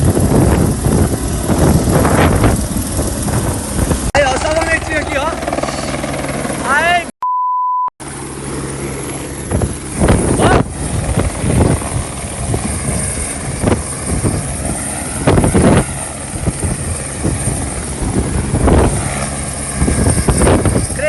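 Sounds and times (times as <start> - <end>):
wind noise surges: 0.0 - 4.4, 9.4 - 21.0
helicopter turbine and rotor: 0.0 - 7.1, 8.0 - 21.0.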